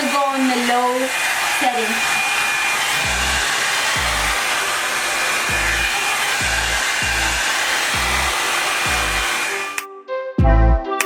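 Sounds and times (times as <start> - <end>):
hair dryer blowing: 0.0 - 9.8
background music with deep beat: 5.5 - 7.4, 8.0 - 11.0.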